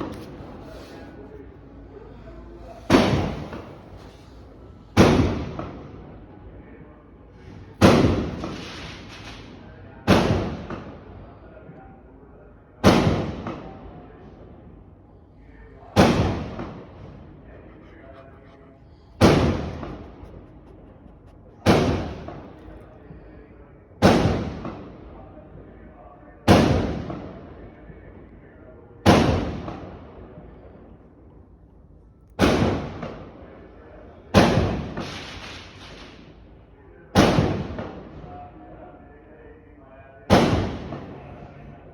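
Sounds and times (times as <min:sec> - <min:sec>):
firecracker bangs with echo: 0:10.1 - 0:10.9, 0:12.8 - 0:13.6, 0:24.0 - 0:24.9, 0:26.5 - 0:27.2, 0:34.4 - 0:36.2, 0:37.2 - 0:38.0, 0:40.3 - 0:41.2.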